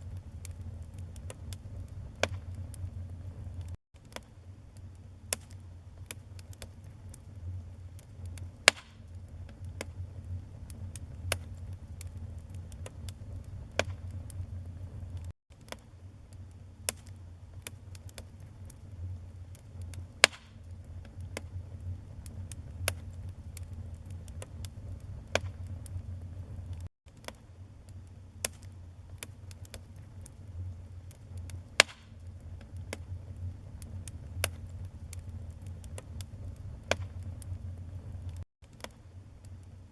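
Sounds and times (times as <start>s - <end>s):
fire flames rumbling: 0.0s - 3.8s, 4.8s - 15.3s, 16.4s - 26.9s, 27.9s - 38.4s
fire crackles and pops: 0.0s - 39.9s.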